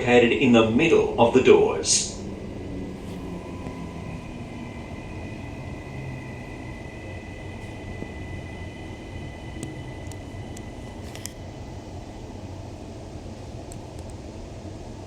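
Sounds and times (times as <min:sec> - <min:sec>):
high electric whine: 0:00.0 - 0:13.9
train car rumble: 0:00.0 - 0:15.0.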